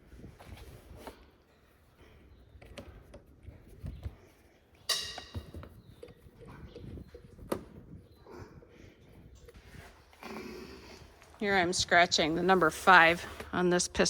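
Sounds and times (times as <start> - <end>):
ringing metallic clang: 4.9 - 5.6.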